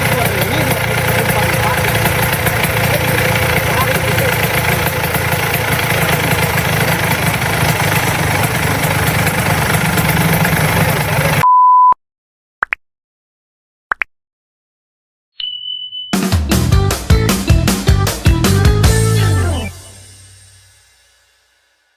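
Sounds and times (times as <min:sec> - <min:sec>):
two-stroke scooter engine running: 0:00.0 - 0:11.4
brief blips: 0:11.4 - 0:12.0, 0:15.4 - 0:16.2
short steady beep: 0:11.4 - 0:12.0, 0:15.4 - 0:16.2.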